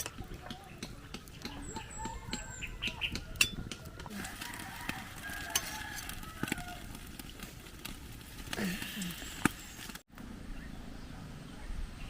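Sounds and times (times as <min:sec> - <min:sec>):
chickens clucking: 0:00.0 - 0:07.3.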